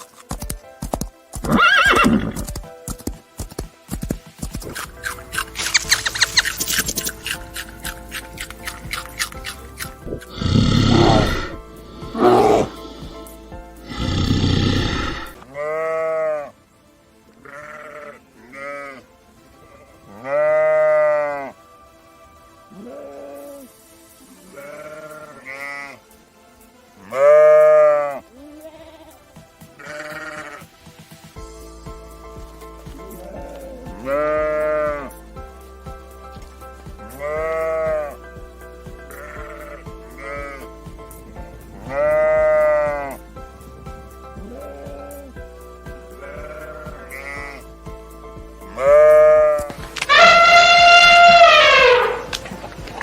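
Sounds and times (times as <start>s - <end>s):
background music with steady beat: 0.0s - 53.0s
sheep bleating: 10.0s - 13.0s, 13.9s - 16.6s, 17.4s - 19.1s, 19.7s - 21.6s, 24.4s - 26.0s, 27.0s - 30.7s, 33.0s - 35.2s, 37.1s - 38.2s, 39.1s - 40.7s, 41.8s - 43.2s, 46.2s - 47.7s, 48.7s - 53.0s.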